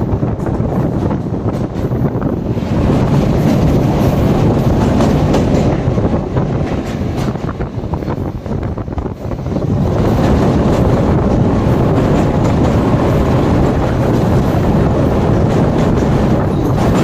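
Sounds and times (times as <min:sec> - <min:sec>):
train rumbling on rails: 0:00.0 - 0:17.0
train wheels clattering: 0:00.0 - 0:17.0.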